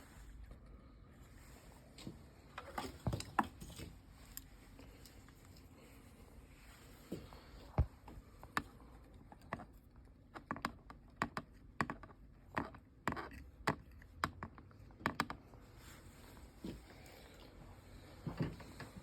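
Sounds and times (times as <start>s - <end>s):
small clicks and taps: 9.3s - 15.4s.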